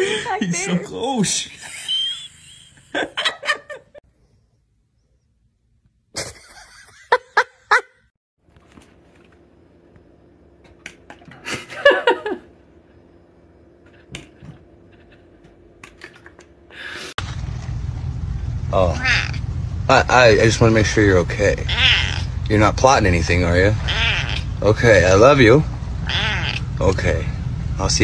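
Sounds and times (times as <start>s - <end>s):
steady low hum: 8.5s - 28.0s
pet animal calls: 18.9s - 19.5s, 21.6s - 22.4s, 23.8s - 24.6s, 26.0s - 26.7s.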